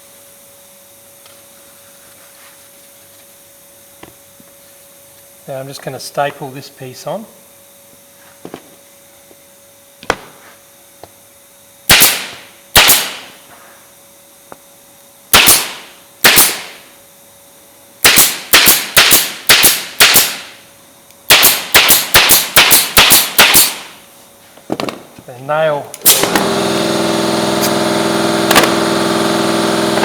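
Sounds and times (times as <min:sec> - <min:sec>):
staple gun firing: 0:21.3 - 0:23.8, 0:28.5 - 0:28.8.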